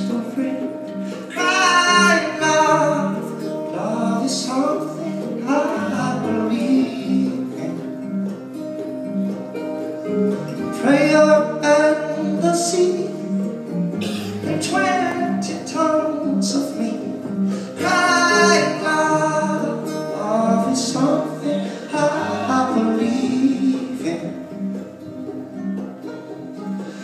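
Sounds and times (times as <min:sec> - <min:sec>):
guitar chords: 0:00.0 - 0:27.0
people singing: 0:03.7 - 0:07.9, 0:17.8 - 0:24.6.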